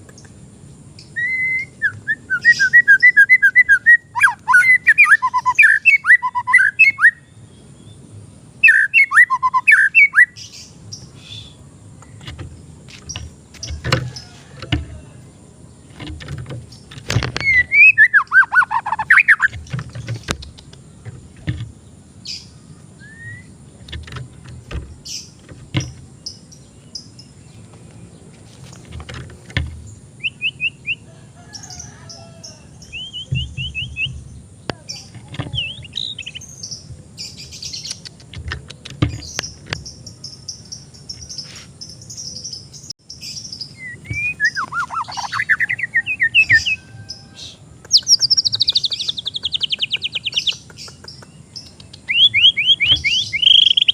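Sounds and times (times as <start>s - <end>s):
quiet bird chirps: 0.0s - 53.9s
bird singing whistled phrases: 1.0s - 7.3s, 8.6s - 10.4s, 17.4s - 19.5s, 23.0s - 23.6s, 30.2s - 31.0s, 32.9s - 34.1s, 35.6s - 36.4s, 43.7s - 50.2s, 52.1s - 53.9s
sharp clicks and knocks: 12.0s - 15.0s, 15.9s - 17.7s, 19.4s - 21.8s, 23.8s - 26.2s, 28.6s - 29.9s, 33.3s - 35.8s, 37.8s - 40.0s.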